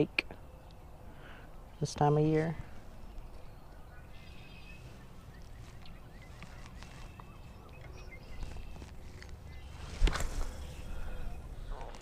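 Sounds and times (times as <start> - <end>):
faint bird calls: 2.6 - 12.0.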